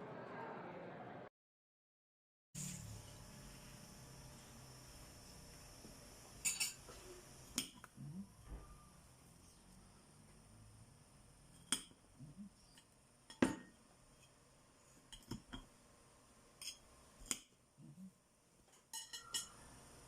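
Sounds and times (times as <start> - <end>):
dishes and utensils clinking: 6.4 - 7.2, 18.7 - 19.7.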